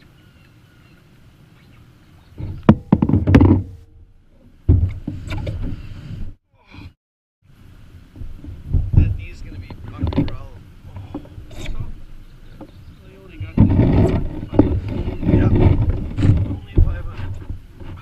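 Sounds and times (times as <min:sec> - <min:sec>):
wind: 0:00.0 - 0:18.0
water thumps: 0:02.3 - 0:03.9, 0:04.6 - 0:05.8, 0:08.1 - 0:18.0
paddle knocking canoe hull: 0:02.4 - 0:03.8, 0:04.7 - 0:05.8, 0:08.1 - 0:18.0.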